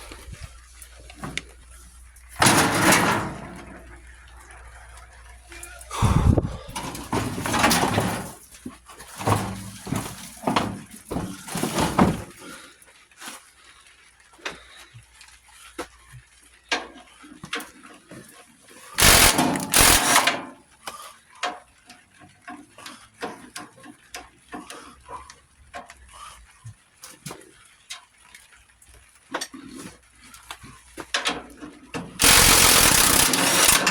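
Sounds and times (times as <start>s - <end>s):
metal tools clanking: 2.4s - 4.0s, 6.7s - 8.5s, 9.1s - 12.3s, 19.0s - 20.5s, 32.2s - 33.9s.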